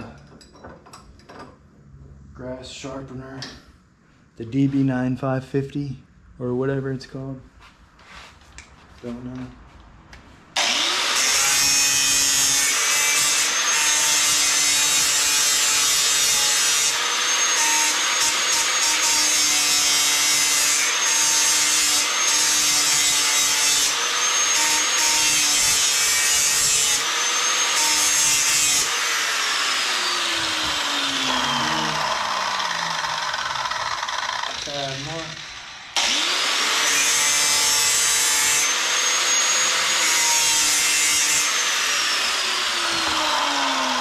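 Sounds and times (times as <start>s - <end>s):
grinder grinding steel blade: 10.6s - 44.0s
grinder motor hum: 28.9s - 36.9s.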